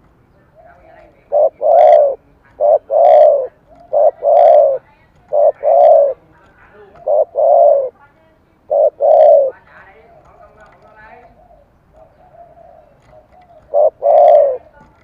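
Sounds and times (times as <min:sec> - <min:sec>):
dove cooing: 0:00.4 - 0:08.0, 0:08.6 - 0:15.0.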